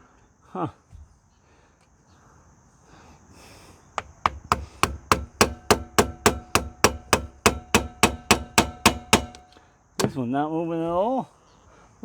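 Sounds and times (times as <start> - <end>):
hammer striking steel punch: 4.0 - 10.2.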